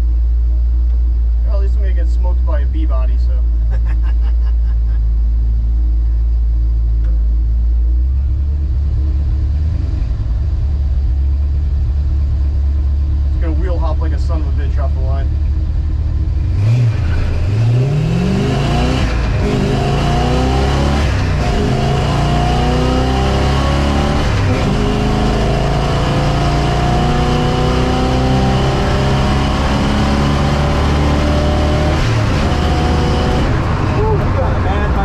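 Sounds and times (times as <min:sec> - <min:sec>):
car engine at full throttle: 0:00.0 - 0:35.0.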